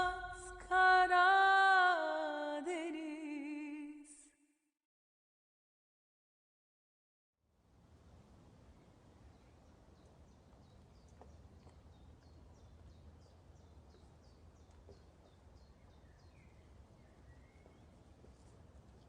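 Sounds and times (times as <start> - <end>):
quiet low hum: 7.6 - 19.0
bird chirping: 8.6 - 19.0.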